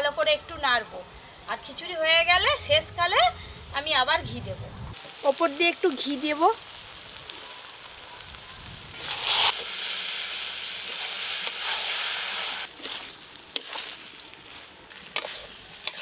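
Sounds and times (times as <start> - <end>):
rice sizzling in a pan: 4.9 - 16.0
metal spatula scraping pan: 10.9 - 16.0.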